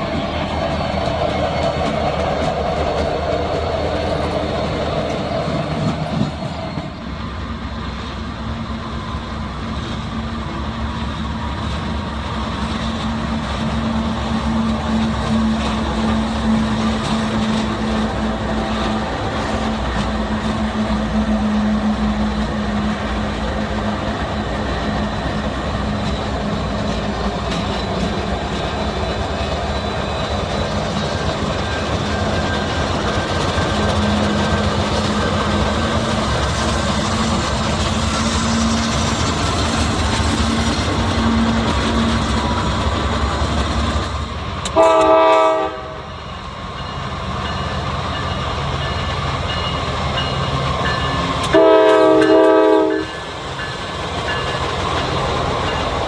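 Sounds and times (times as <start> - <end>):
freight train engine drone: 0.0 - 56.0
wheel and rail noise: 0.0 - 56.0
locomotive horn blast: 44.7 - 46.1, 51.4 - 53.2.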